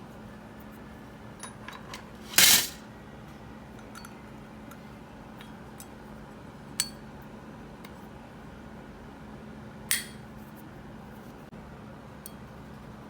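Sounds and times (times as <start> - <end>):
small metal parts clinking: 1.4 - 2.8.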